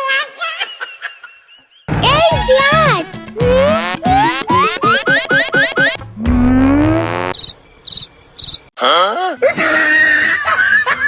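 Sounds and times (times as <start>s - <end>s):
busy cartoon chattering: 2.4s - 6.0s
warbling up-and-down glide: 2.6s - 6.0s
quick rising cartoon chirps: 3.5s - 6.0s
short high beeps: 3.5s - 6.0s
upward slide whistle: 3.5s - 6.0s.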